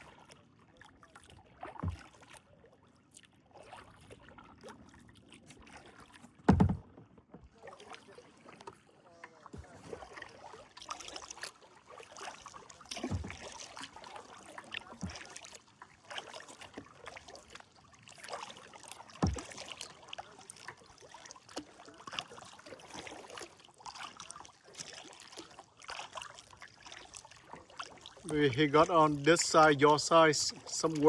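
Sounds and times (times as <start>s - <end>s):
paddle blades in water: 0.0s - 31.0s
dull knocks: 6.5s - 6.9s.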